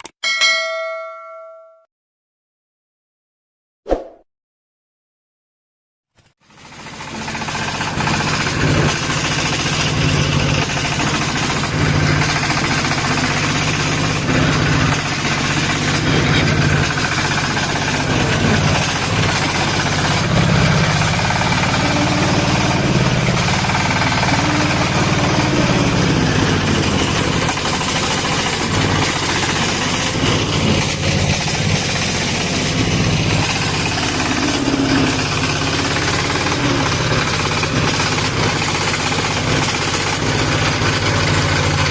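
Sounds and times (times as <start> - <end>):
diesel engine chugging: 6.4 - 41.9.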